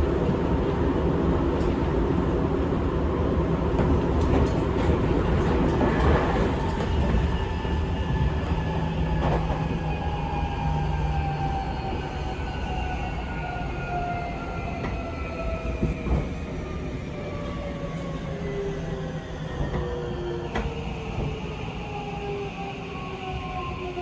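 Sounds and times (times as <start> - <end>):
train wheels rumbling: 0.0 - 12.9.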